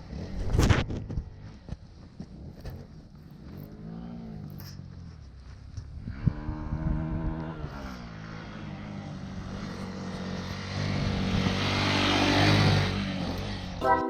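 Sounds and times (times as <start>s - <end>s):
motorcycle engine revving: 0.0s - 13.8s.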